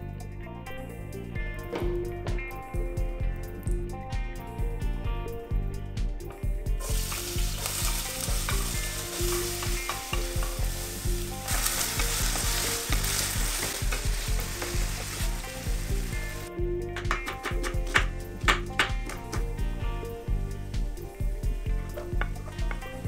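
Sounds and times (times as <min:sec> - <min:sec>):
potatoes sizzling in hot oil: 0:06.8 - 0:16.5.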